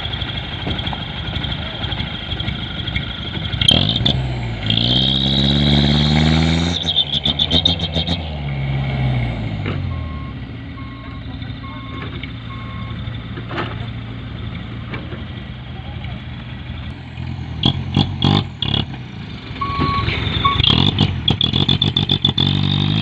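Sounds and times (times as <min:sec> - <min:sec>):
diesel truck engine revving: 0:00.0 - 0:23.0
reversing alarm beeping: 0:09.9 - 0:13.1, 0:19.3 - 0:21.6.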